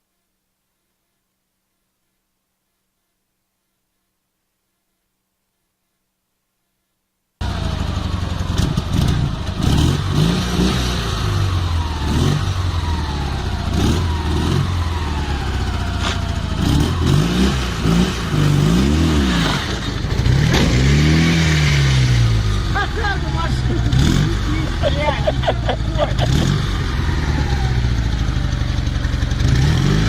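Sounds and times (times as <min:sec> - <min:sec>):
engine revving: 0:07.4 - 0:30.0.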